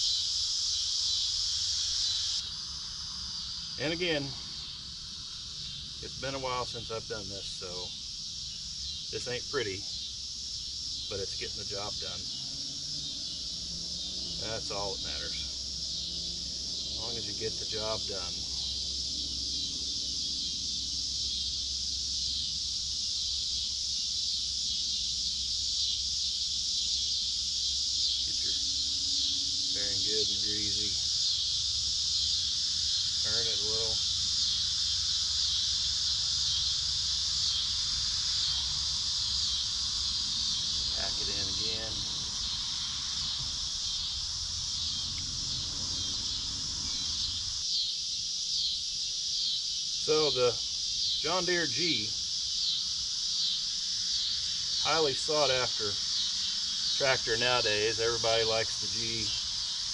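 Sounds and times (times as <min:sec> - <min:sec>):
crickets chirring: 0:00.0 - 0:59.9
low rumbling rustling noise: 0:37.4 - 0:47.6.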